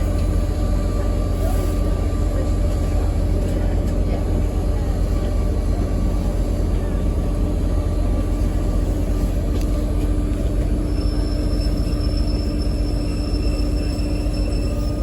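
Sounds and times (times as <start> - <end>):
train carriage rumble: 0.0 - 15.0
high wheel squeal: 10.4 - 15.0.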